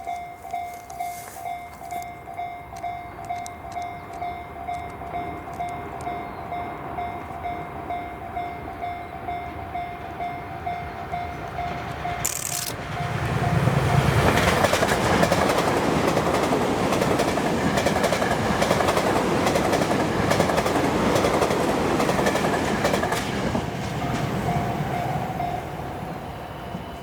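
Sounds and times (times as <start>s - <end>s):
electric train passing: 0.0s - 27.0s
wheels clattering over rail joints: 11.9s - 25.0s.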